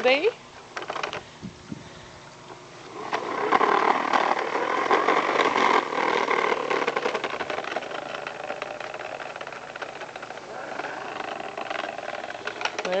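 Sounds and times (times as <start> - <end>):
toy lawnmower rattling: 2.9 - 13.0.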